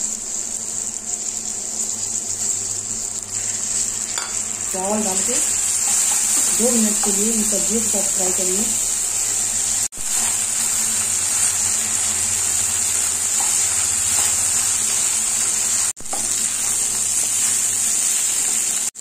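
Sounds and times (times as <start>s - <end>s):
rice and vegetables sizzling: 0.0s - 19.0s
spatula stirring: 5.4s - 7.3s.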